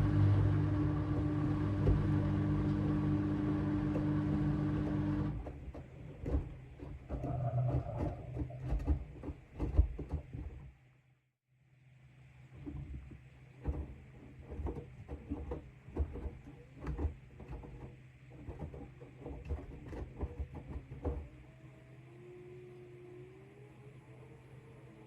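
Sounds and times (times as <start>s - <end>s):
washing machine drum thuds and knocks: 0.0s - 10.7s
washing machine motor hum: 0.0s - 11.0s, 12.1s - 25.0s
faint rising whine: 21.4s - 25.0s.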